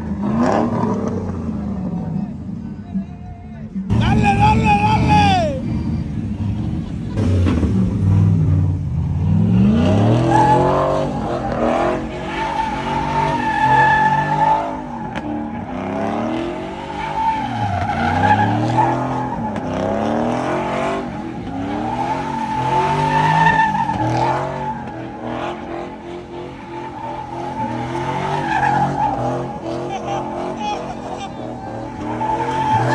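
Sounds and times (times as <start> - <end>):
truck engine revving: 0.0 - 2.9, 3.8 - 32.9
tyres squealing: 10.0 - 32.9.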